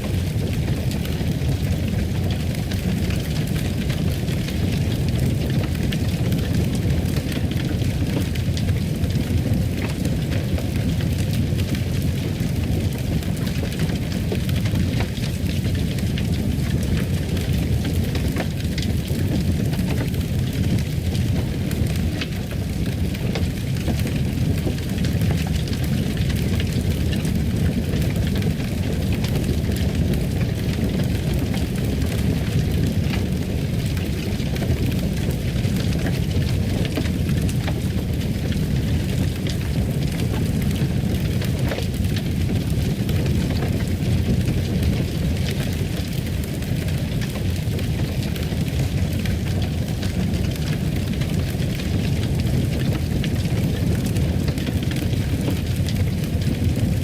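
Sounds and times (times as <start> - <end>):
fire burning with crackles and pops: 0.0 - 57.0.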